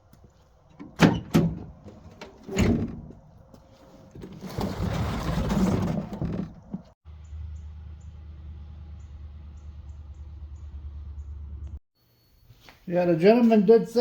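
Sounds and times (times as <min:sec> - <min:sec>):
scraping and rustling: 0:01.9 - 0:07.0.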